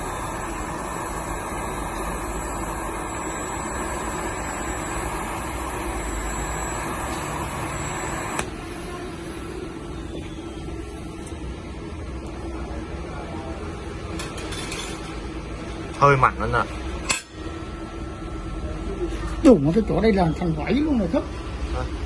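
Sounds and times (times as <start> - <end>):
welder arc hissing and whining: 0.0 - 11.4
quiet machine hum: 0.0 - 22.0.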